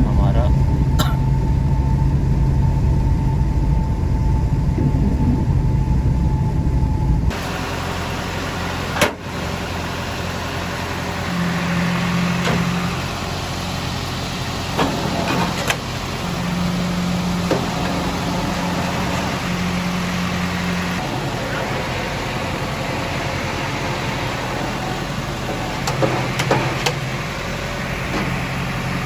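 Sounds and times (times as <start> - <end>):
low hum: 0.0 - 8.8
car engine and road noise: 0.0 - 29.0.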